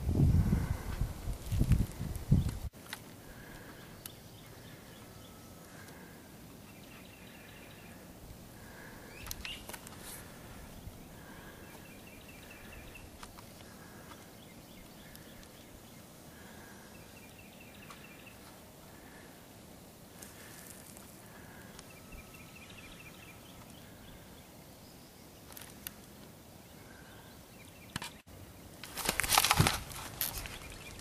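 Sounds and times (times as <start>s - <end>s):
outdoor background noise: 0.0s - 31.0s
bird calls: 3.2s - 19.4s, 20.2s - 26.0s.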